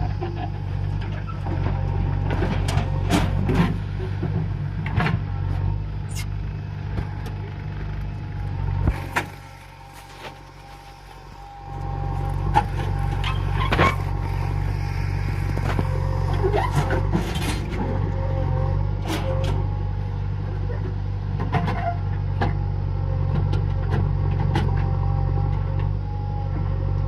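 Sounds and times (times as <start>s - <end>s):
diesel engine under load: 0.0s - 27.0s.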